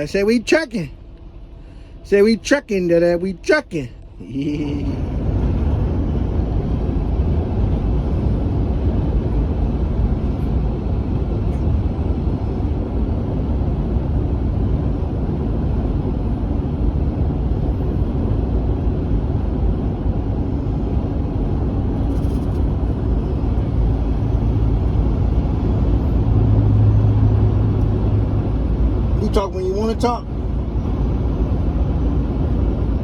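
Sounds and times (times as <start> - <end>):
low hum: 0.0 - 33.0
truck engine low rumble: 0.0 - 33.0.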